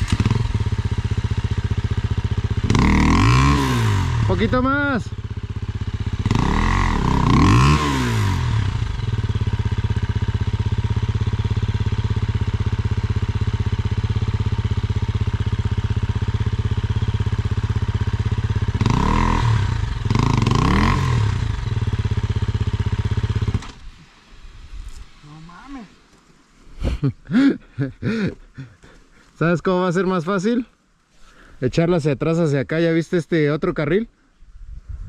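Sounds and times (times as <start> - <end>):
dirt bike engine idling: 0.0 - 23.9, 27.0 - 29.4.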